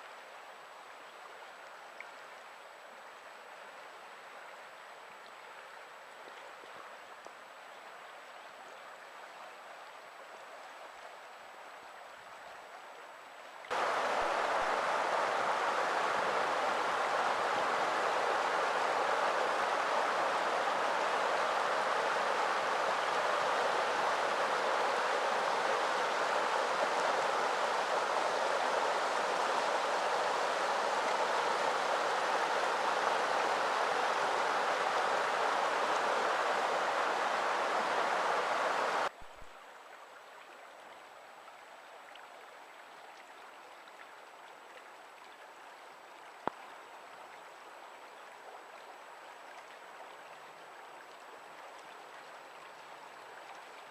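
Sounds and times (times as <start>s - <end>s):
rushing stream water: 0.0s - 53.9s.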